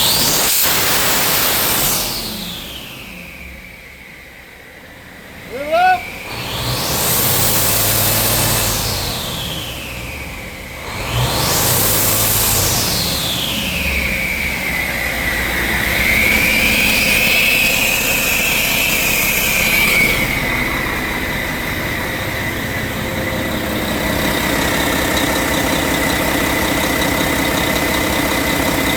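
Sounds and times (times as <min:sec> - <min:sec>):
diesel engine idling: 0:02.8 - 0:28.9
high-pitched whine: 0:11.7 - 0:28.9.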